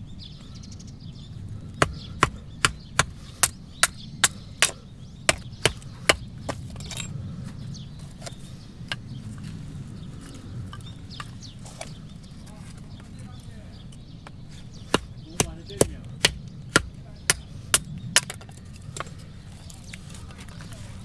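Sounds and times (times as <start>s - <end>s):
axe chopping firewood: 1.7s - 7.1s, 14.3s - 19.3s.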